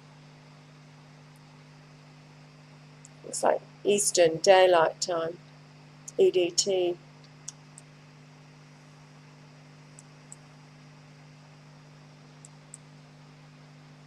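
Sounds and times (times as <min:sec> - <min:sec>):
faint electrical hum and hiss: 0:00.0 - 0:14.0
computer mouse clicks: 0:10.0 - 0:10.4, 0:12.4 - 0:12.9.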